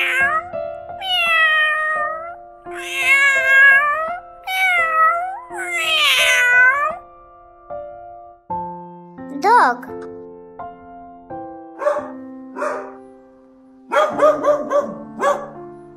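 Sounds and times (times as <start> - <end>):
cat meowing: 0.0 - 7.0
soft background music: 0.0 - 15.9.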